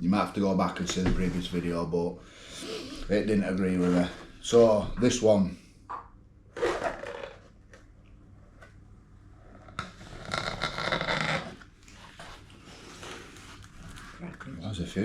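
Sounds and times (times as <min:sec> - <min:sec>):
packaging rasping tear: 0:06.6 - 0:07.5
packaging scrape: 0:06.6 - 0:07.5.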